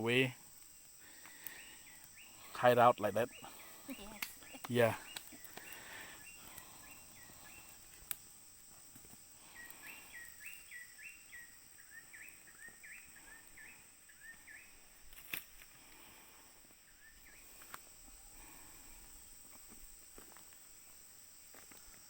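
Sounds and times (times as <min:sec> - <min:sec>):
bird chirping: 0:01.4 - 0:08.0, 0:09.4 - 0:14.9
sharp clicks: 0:04.0 - 0:05.8.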